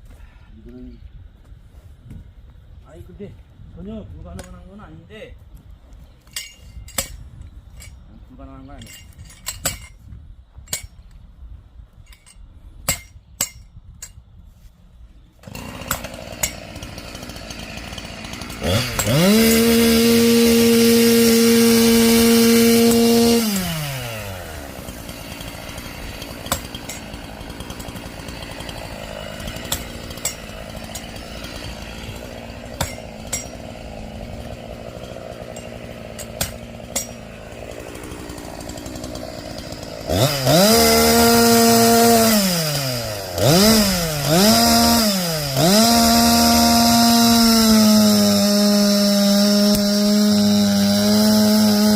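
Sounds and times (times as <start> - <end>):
chainsaw revving and idling: 15.4 - 51.9.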